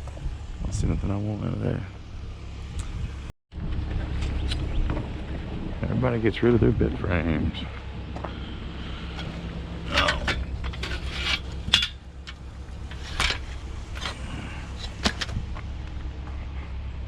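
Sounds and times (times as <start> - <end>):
vehicle engine running: 0.0 - 17.0
sharp knocks and rattles: 9.0 - 16.4.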